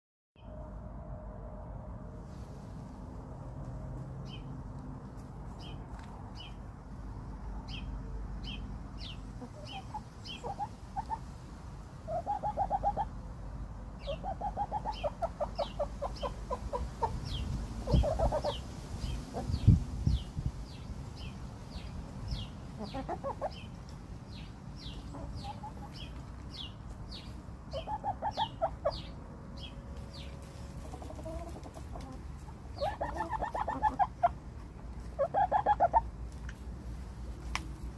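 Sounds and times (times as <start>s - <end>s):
chickens clucking: 9.0s - 11.2s, 12.0s - 13.1s, 14.0s - 19.8s, 22.3s - 29.2s, 30.0s - 36.6s.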